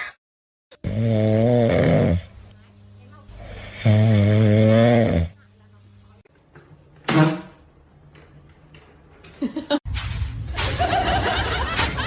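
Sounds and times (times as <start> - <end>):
people laughing: 10.6 - 12.0.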